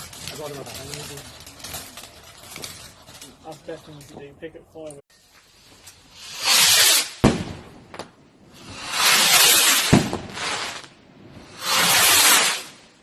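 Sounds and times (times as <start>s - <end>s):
fireworks whooshing: 0.0s - 3.2s, 5.4s - 13.0s
fireworks bangs: 6.1s - 13.0s.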